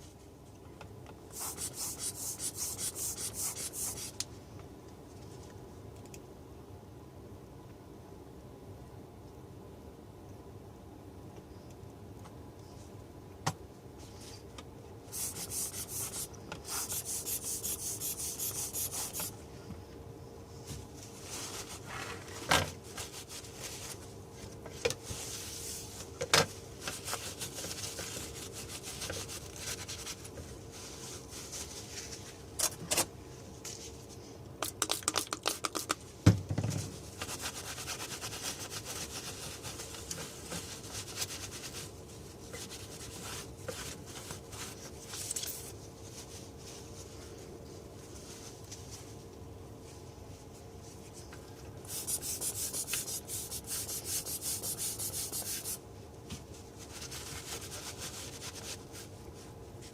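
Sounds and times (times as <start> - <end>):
faint steady hum: 0.0 - 59.9
rubbing and scraping on hard surface: 1.4 - 4.1, 15.2 - 19.3, 51.9 - 55.8
clicks and taps: 34.6 - 36.0.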